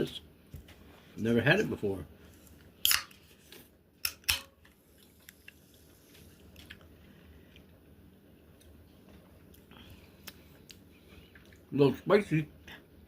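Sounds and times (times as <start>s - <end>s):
faint chewing: 4.7s - 7.9s, 8.5s - 11.7s.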